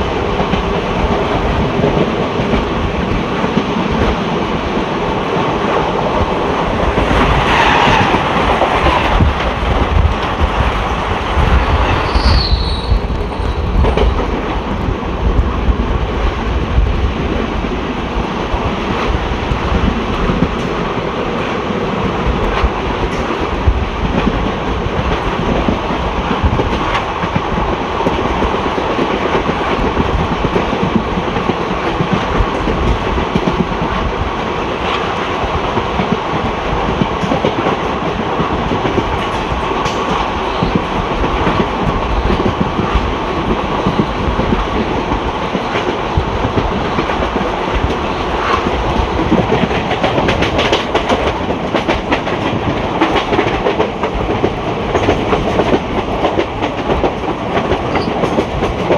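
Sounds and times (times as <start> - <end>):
train wheels clattering over rail joints: 34.8 - 58.9.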